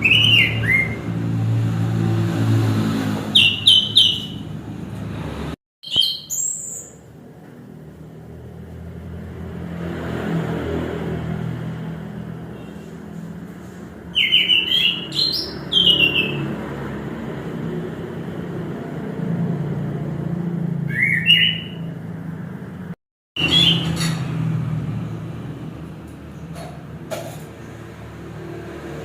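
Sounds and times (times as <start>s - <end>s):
bird singing whistled notes: 0.0s - 1.1s, 3.4s - 4.4s, 5.8s - 7.0s, 14.1s - 16.4s, 20.8s - 21.9s, 23.4s - 24.0s.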